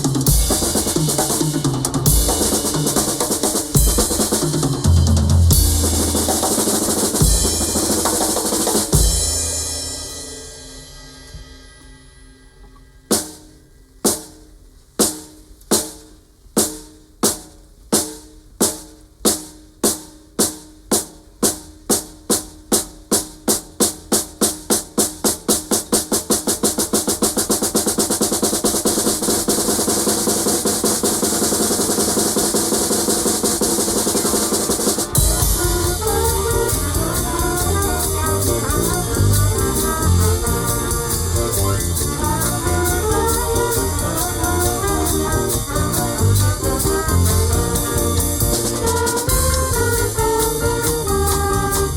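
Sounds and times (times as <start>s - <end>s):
band playing: 0.0s - 14.4s, 23.8s - 51.9s
drum roll: 0.0s - 51.9s.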